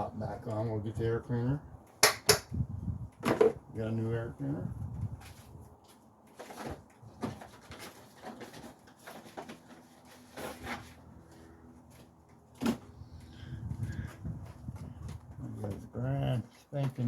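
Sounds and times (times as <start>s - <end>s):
plastic rustles and clicks: 5.3s - 11.0s.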